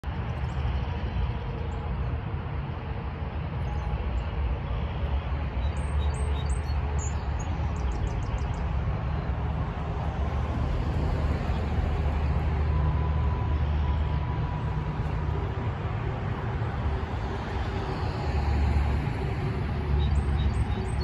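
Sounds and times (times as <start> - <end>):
steady low rumble: 6.8 - 21.0.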